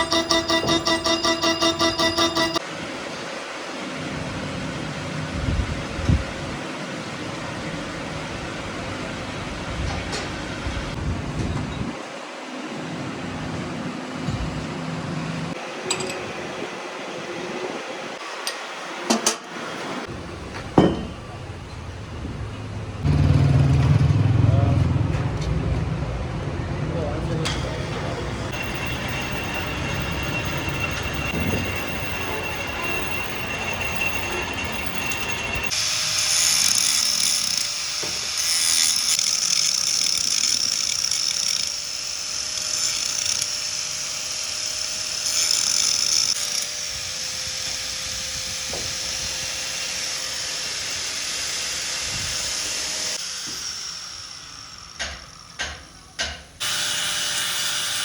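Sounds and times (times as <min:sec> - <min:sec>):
metalworking machine hissing: 0:27.5 - 0:41.3.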